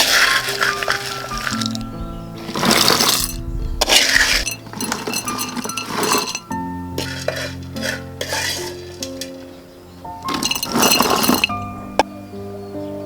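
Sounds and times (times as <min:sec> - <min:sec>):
dishes and cutlery clinking: 0:00.0 - 0:12.1
background music: 0:00.0 - 0:13.0.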